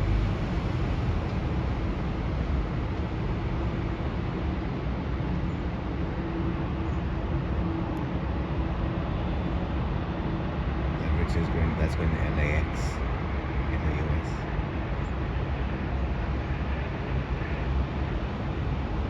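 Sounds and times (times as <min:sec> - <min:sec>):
distant jet aircraft rumble: 0:00.0 - 0:19.0
faint steady hum: 0:10.8 - 0:19.0.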